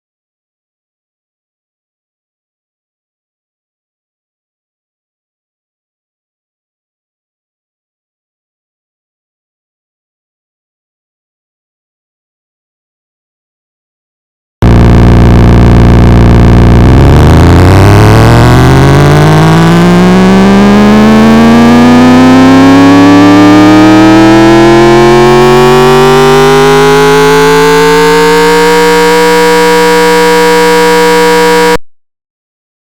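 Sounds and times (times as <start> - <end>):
synthesized engine revving: 14.6 - 31.8.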